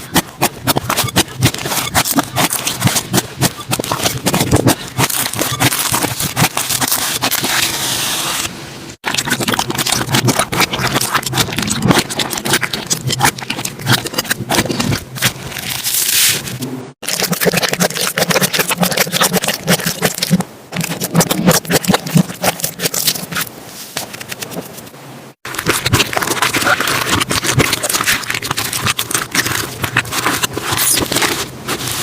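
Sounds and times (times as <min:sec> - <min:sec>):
slime crackling and popping: 0:25.5 - 0:31.1.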